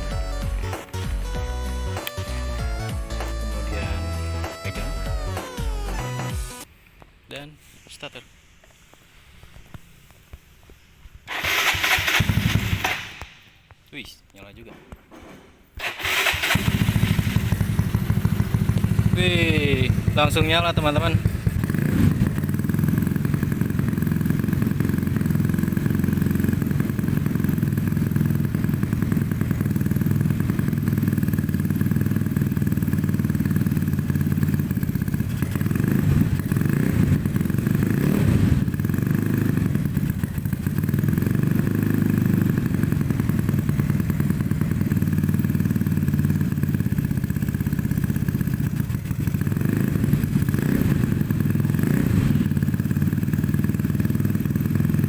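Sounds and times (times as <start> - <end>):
scooter engine idling and revving: 11.3 - 13.5, 15.8 - 55.0.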